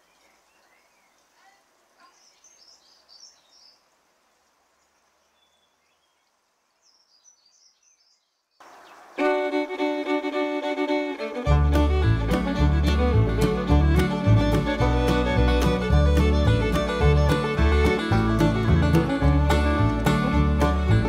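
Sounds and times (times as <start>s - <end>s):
fiddle music: 9.2s - 21.0s.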